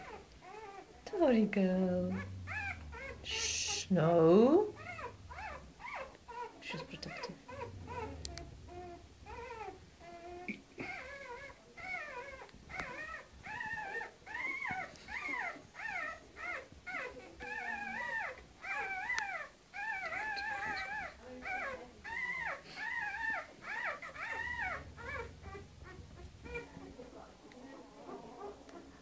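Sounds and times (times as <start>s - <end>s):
dog whining and yelping: 0.0s - 1.2s, 1.8s - 27.0s.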